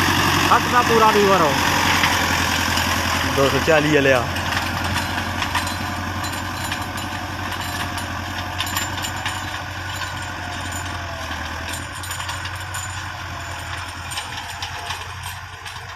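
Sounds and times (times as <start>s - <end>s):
tractor diesel engine idling: 0.0s - 15.9s.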